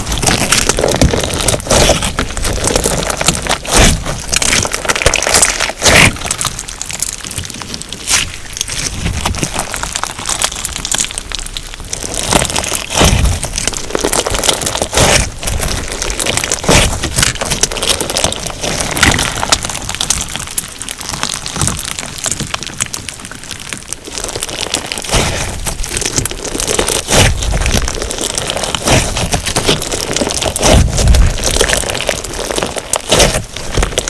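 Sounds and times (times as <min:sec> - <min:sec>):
crunchy slime squeezed by hand: 0:00.0 - 0:34.0.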